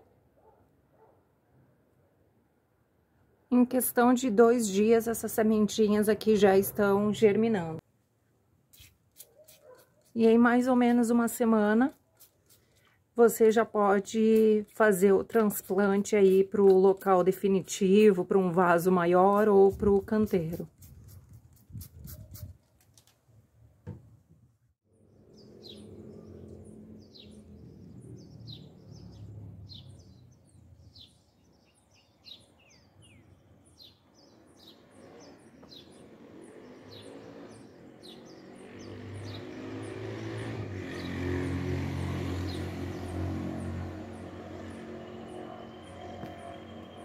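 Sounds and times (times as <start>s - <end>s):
birds chirping: 25.1s - 41.4s, 42.4s - 47.0s
low vehicle engine hum: 38.8s - 47.0s.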